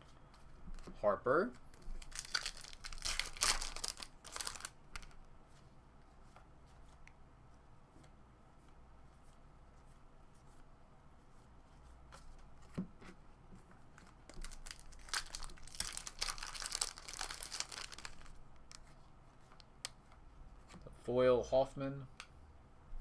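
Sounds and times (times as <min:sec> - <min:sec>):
foil wrapper tearing and crinkling: 0:01.6 - 0:05.1, 0:14.3 - 0:18.8.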